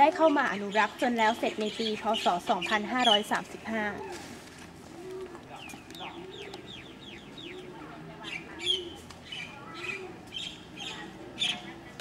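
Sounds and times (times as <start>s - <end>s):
bird chirps: 5.6s - 11.8s.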